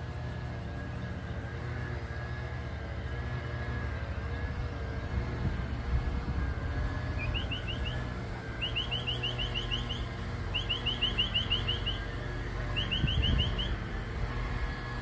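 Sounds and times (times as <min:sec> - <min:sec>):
small bird chirping: 0:07.0 - 0:15.0.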